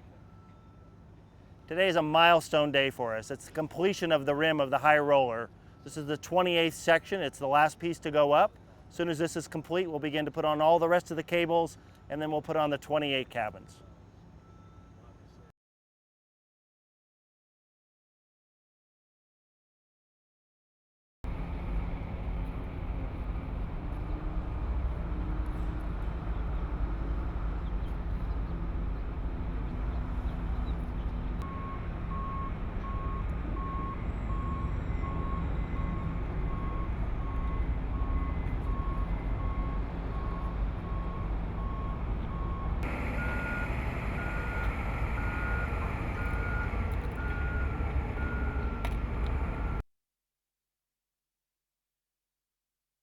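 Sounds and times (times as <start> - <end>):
diesel machinery rumbling: 21.3 - 49.8
high-pitched backup beeper: 31.4 - 49.8
reversing alarm beeping: 31.4 - 49.8.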